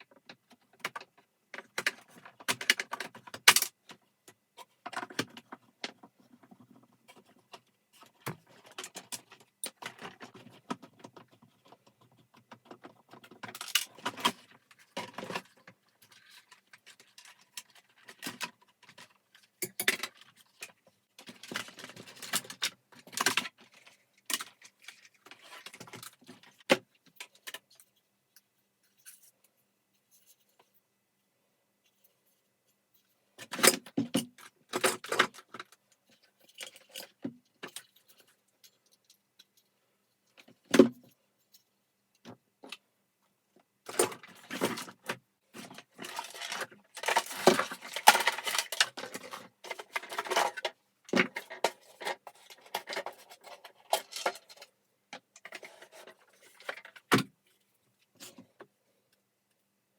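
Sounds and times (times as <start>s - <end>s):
small hard parts clicking and rattling: 0.0s - 30.7s, 43.8s - 58.6s.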